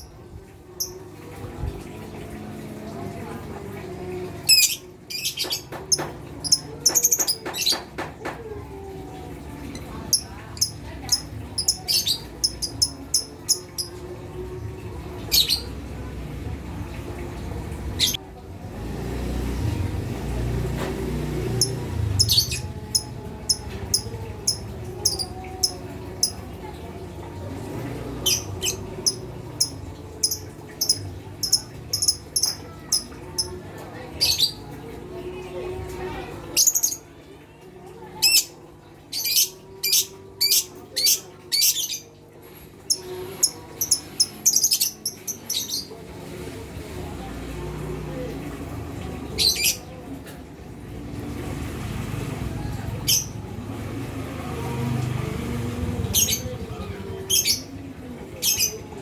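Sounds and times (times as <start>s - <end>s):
birds chirping: 9.7s - 14.0s, 15.2s - 15.8s, 21.0s - 26.8s, 27.6s - 33.6s, 56.0s - 59.0s.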